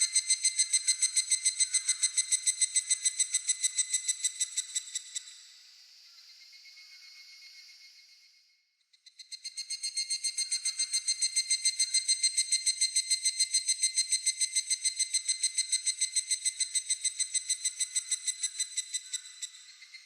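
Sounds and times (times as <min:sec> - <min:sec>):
cicada calling: 0:00.0 - 0:05.2, 0:09.3 - 0:20.0.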